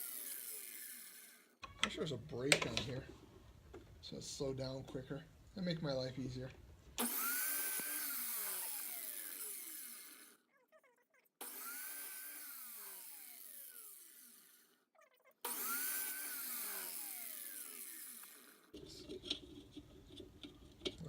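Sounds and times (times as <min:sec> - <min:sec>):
power saw blade whine coasting down: 0:07.0 - 0:10.4, 0:15.5 - 0:18.7.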